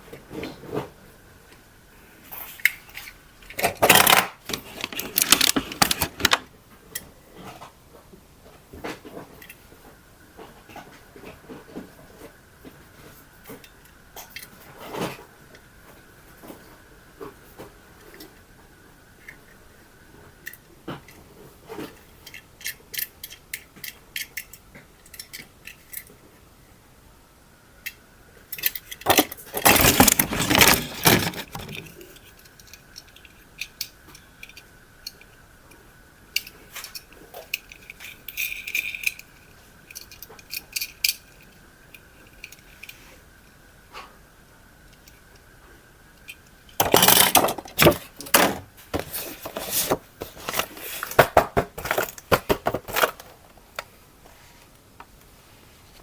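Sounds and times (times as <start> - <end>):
small plastic objects clicking and rattling: 2.4 - 6.5, 28.5 - 35.3, 36.4 - 41.6, 46.7 - 53.5.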